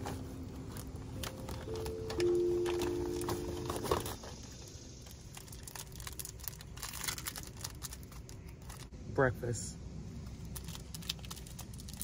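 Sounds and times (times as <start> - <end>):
held musical chord: 0.3 - 4.2.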